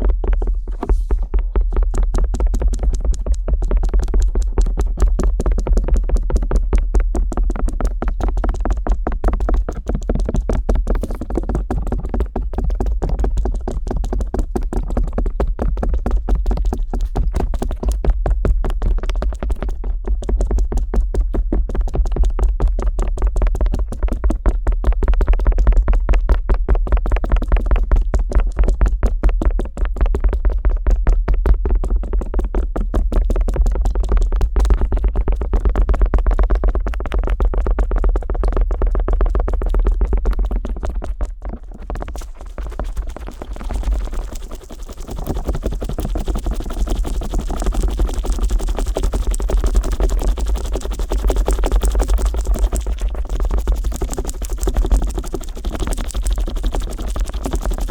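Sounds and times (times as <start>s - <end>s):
deep contact rumble: 0.0s - 2.4s
ear pick scratching microphone: 0.0s - 5.4s, 9.4s - 12.6s, 33.2s - 57.9s
deep rumble from microphone: 0.0s - 7.4s, 10.5s - 12.0s
ear pick scraping microphone: 0.1s - 1.7s, 10.9s - 11.5s.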